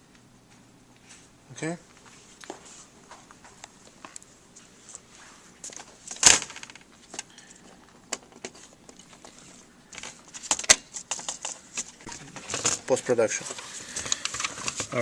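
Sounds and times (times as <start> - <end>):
laptop parts clicking: 13.9 - 15.0.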